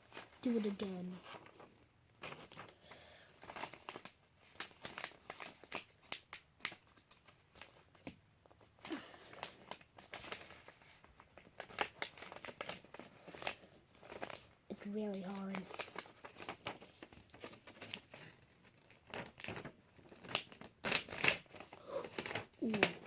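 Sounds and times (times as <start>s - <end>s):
paper crinkling: 0.0s - 23.0s.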